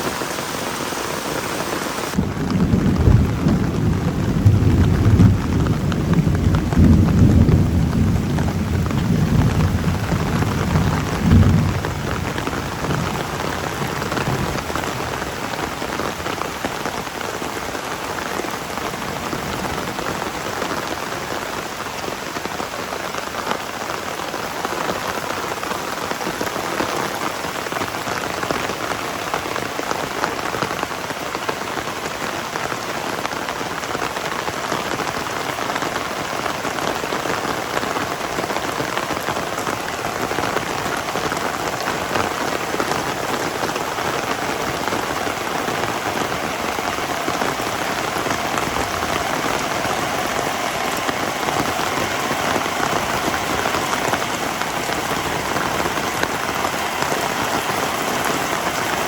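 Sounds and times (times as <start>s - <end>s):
heavy rain pouring: 0.0s - 59.0s
rolling thunder rumble: 2.1s - 17.6s, 37.5s - 59.0s.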